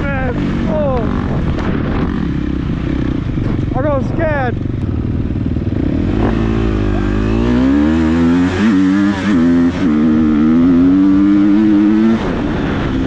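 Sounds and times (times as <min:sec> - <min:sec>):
low rumble: 0:00.0 - 0:07.6
motorbike engine revving: 0:04.5 - 0:13.0.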